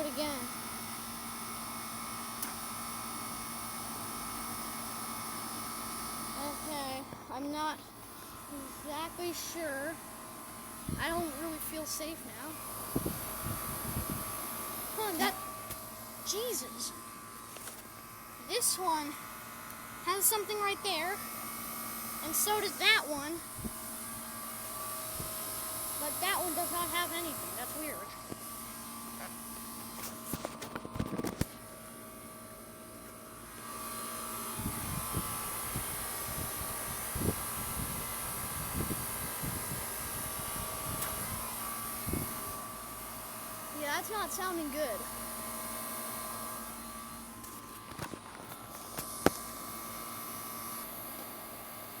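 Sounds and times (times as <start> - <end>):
air conditioner humming: 0.0 - 52.0.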